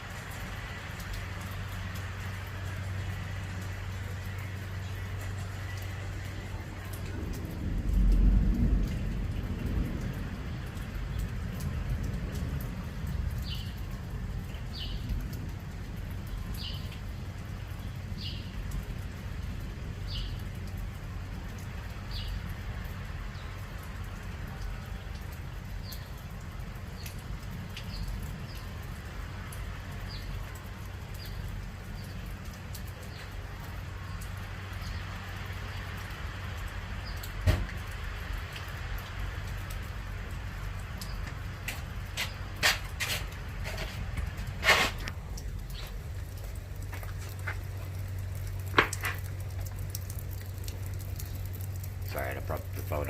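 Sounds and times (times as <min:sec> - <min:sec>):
storm rain: 0:00.0 - 0:53.0
wind: 0:00.0 - 0:53.0
low rumble: 0:04.6 - 0:13.4.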